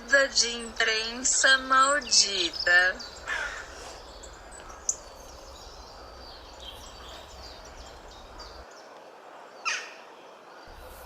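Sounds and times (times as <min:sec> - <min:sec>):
background hiss: 0:00.0 - 0:11.0
birds chirping: 0:00.0 - 0:11.0.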